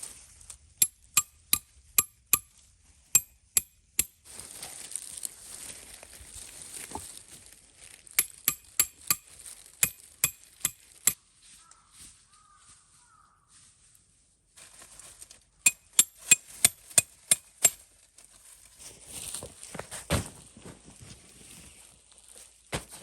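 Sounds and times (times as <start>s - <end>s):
sharp ringing knocks: 15.7s - 17.8s.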